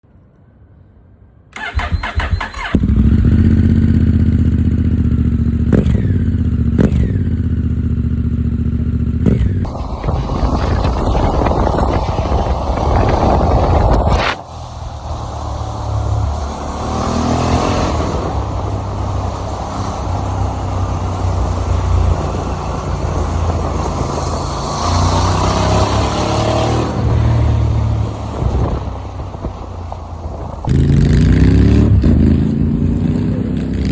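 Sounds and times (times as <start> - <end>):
starter motor cranking: 1.6 - 3.1
motorcycle engine revving: 1.6 - 14.4, 15.0 - 28.8, 30.6 - 33.9
wind noise: 9.2 - 20.2, 20.8 - 33.9.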